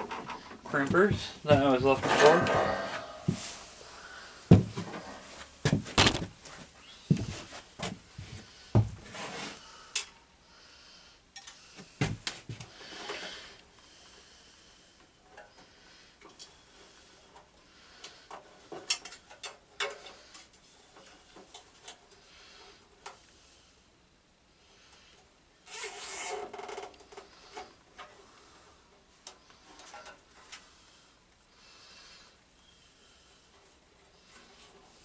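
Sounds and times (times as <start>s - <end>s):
metal tools clinking and clattering: 1.7s - 3.6s.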